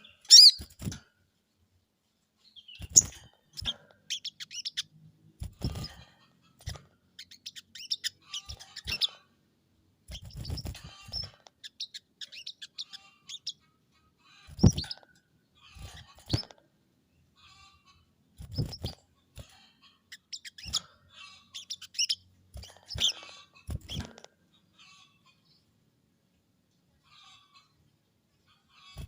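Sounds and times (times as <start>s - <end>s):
bird chirping and rattling: 0.0s - 1.2s, 2.4s - 9.4s, 10.0s - 25.6s, 27.0s - 27.8s, 28.7s - 29.0s.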